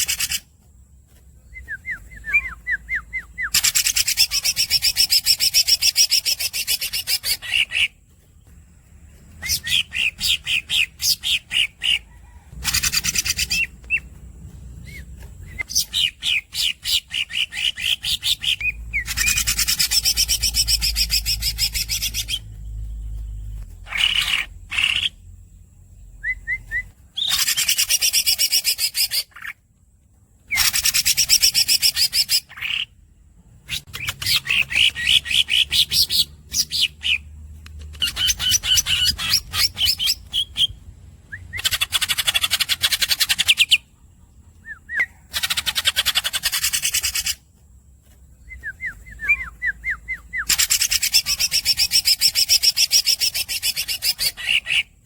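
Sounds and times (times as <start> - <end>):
high squeaky bird chirps: 0.0 - 0.5, 1.5 - 8.0, 9.4 - 14.2, 14.8 - 25.2, 37.8 - 40.8, 44.6 - 47.4, 48.4 - 55.0
bird singing rolling trills: 0.0 - 55.0.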